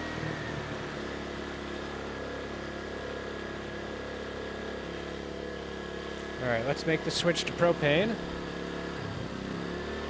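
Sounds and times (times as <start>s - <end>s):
generator engine running: 0.0s - 10.0s.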